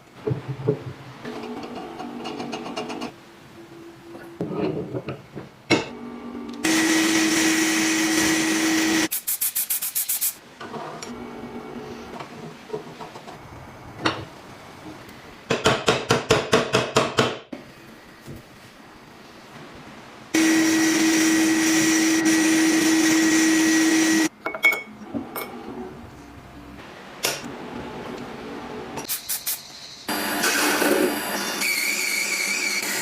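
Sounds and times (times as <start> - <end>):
power tool motor running: 6.6 - 9.1, 20.4 - 24.3.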